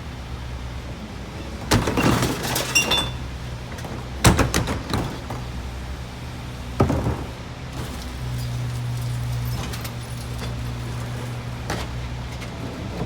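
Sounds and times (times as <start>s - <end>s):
diesel engine idling: 0.0s - 2.0s, 3.0s - 13.0s
glass crashing and breaking: 1.7s - 3.3s.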